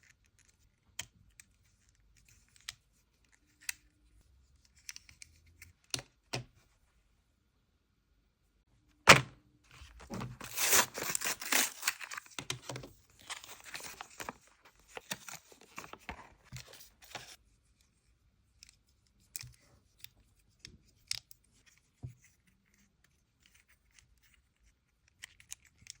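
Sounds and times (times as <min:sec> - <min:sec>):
packaging tearing: 0:09.8 - 0:12.3, 0:13.2 - 0:14.4.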